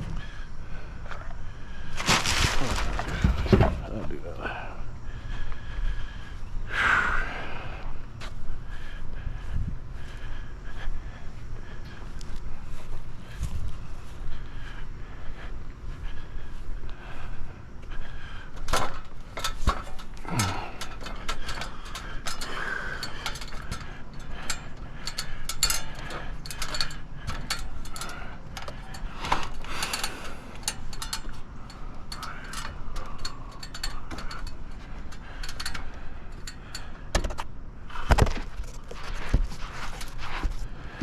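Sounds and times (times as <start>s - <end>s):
handling clicks and scuffs: 1.1s - 4.0s, 18.6s - 41.0s
loud thumps: 2.0s - 4.2s.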